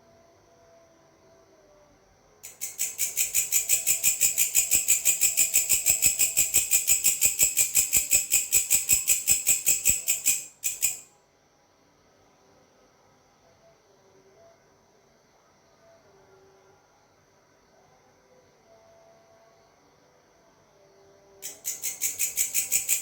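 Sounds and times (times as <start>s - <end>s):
grasshopper rasping chirp: 2.4s - 11.1s, 21.4s - 23.0s.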